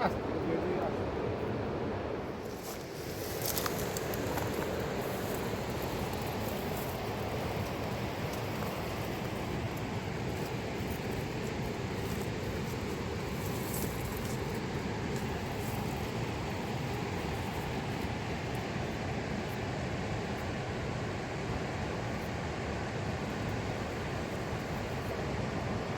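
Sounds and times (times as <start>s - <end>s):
river rushing: 0.1s - 25.9s.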